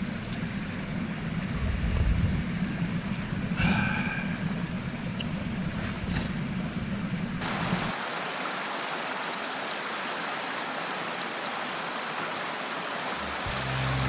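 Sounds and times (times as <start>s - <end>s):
stream rushing: 0.0s - 14.0s
low rumble: 1.2s - 4.9s.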